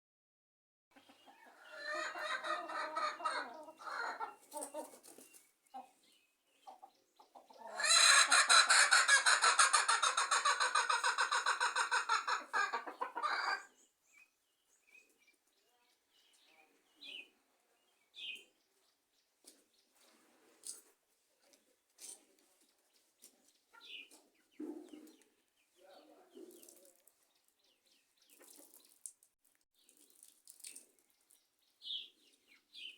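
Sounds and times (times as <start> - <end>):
chickens clucking: 0.9 - 13.8, 23.2 - 25.3.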